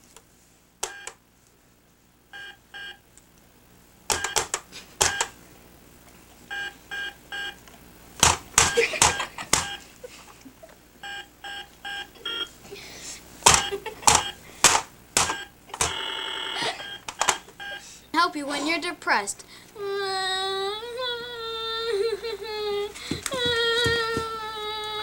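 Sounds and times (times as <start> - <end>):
sharp clicks and knocks: 4.1 - 5.3, 7.6 - 9.8, 13.5 - 16.0
short electronic beeps: 15.3 - 17.0, 17.6 - 17.8.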